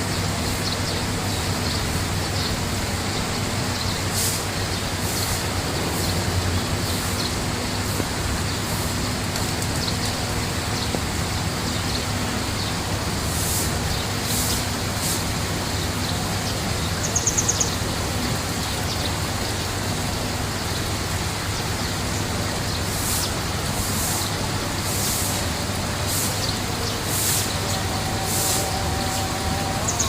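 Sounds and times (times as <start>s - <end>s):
water rushing: 0.2s - 30.0s
bird chirping trill: 15.8s - 17.9s, 25.2s - 30.0s.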